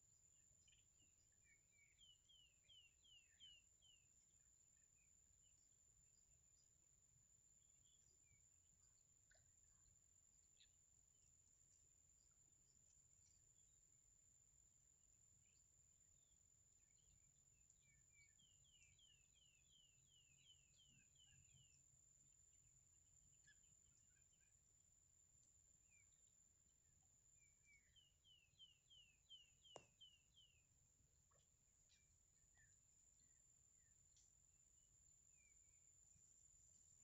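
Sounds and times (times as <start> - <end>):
bird chirping: 0.6 - 4.0, 17.8 - 21.8, 27.4 - 30.7, 31.3 - 34.4.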